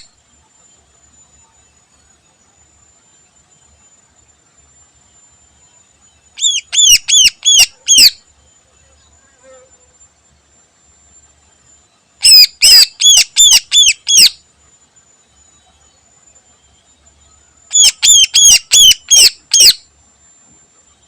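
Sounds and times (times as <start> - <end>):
bird whistling song: 6.2 - 8.2, 12.2 - 14.4, 16.8 - 19.9.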